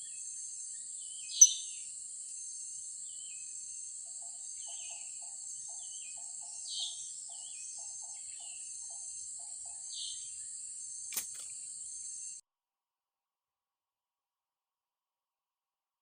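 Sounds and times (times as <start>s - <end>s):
birds falling chirps: 9.9s - 12.4s
sharp click: 11.1s - 11.6s.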